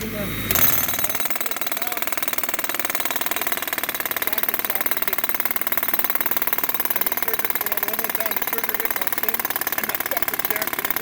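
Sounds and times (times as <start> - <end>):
jackhammer running: 0.0 - 11.0.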